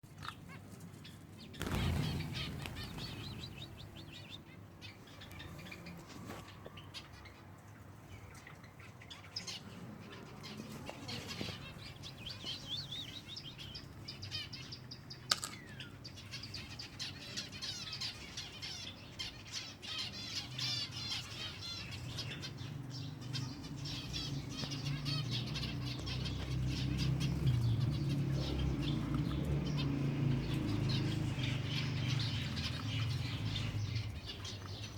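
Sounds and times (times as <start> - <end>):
sparrows chirping: 0.1 - 34.9
wings fluttering: 1.4 - 4.4.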